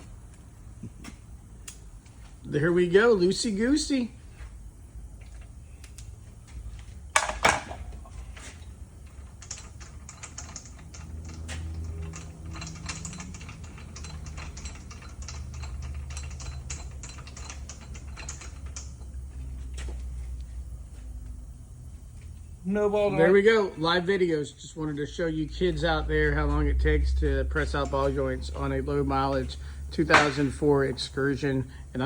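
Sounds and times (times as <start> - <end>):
low steady hum: 0.0 - 32.0
ratchet wrench clicking: 9.0 - 19.2
sharp metal clanks: 30.0 - 31.2.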